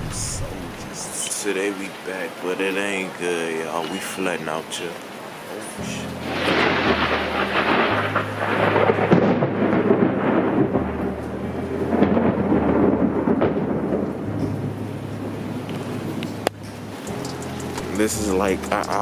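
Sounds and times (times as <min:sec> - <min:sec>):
low bass hum: 0:00.0 - 0:01.0, 0:06.0 - 0:19.0
heavy rain pouring: 0:00.0 - 0:19.0.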